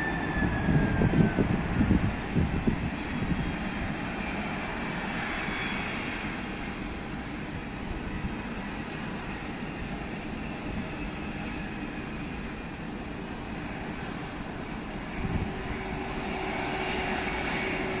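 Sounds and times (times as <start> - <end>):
jet engines rushing: 0.0 - 18.0
steady whine: 0.0 - 18.0.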